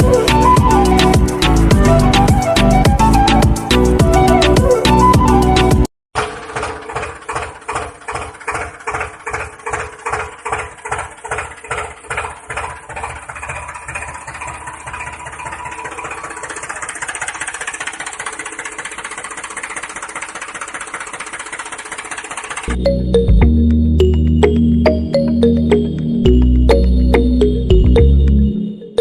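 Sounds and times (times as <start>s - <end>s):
tractor engine chugging: 0.0s - 4.4s, 6.2s - 23.5s.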